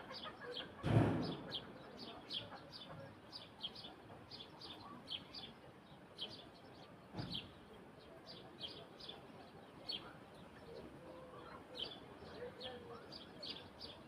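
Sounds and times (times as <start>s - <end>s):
small birds chirping: 0.0s - 14.0s
dull low thump: 0.9s - 1.6s.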